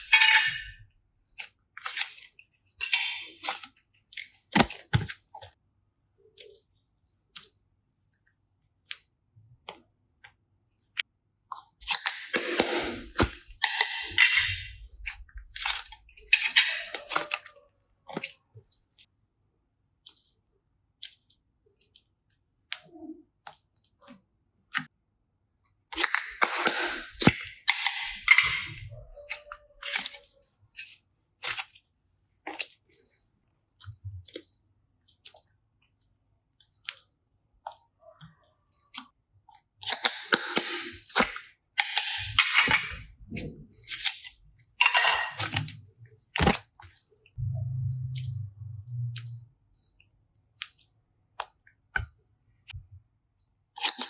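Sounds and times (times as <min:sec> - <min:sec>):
low hum: 0:47.4 - 0:49.5.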